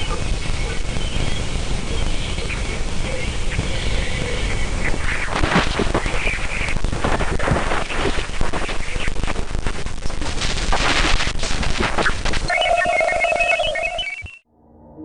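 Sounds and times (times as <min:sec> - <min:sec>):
crackling static with pops: 0:00.0 - 0:14.4
high beeping: 0:12.5 - 0:14.4.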